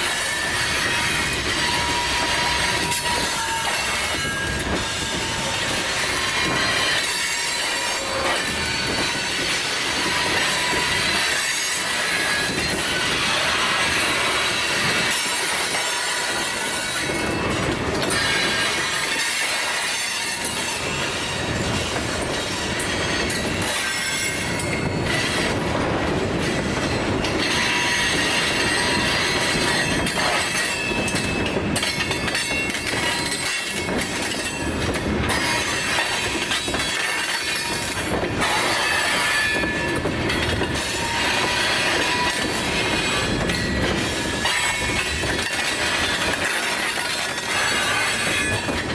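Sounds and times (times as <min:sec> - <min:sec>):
train wheels squealing: 0:00.0 - 0:25.6, 0:26.5 - 0:48.9
wheels clicking over rail joints: 0:00.0 - 0:48.9.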